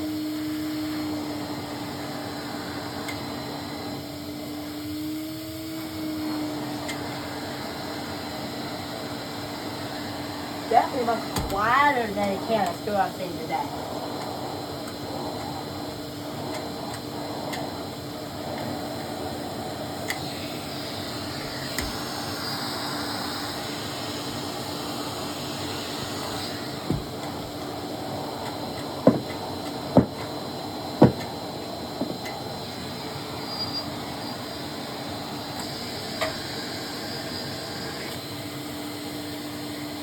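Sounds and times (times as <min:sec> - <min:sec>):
vacuum cleaner humming: 0:00.0 - 0:40.0
sharp knocks: 0:11.4 - 0:11.7, 0:26.9 - 0:27.6, 0:29.0 - 0:29.4, 0:30.0 - 0:30.3, 0:31.0 - 0:31.3, 0:32.0 - 0:32.2.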